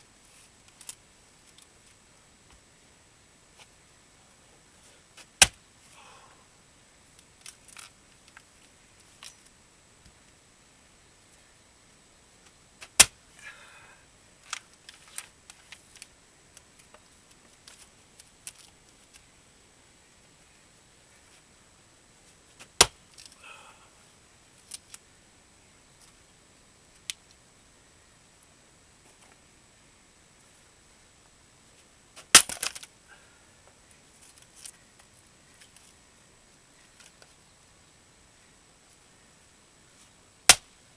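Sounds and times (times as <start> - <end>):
axe striking log: 32.2 - 32.6.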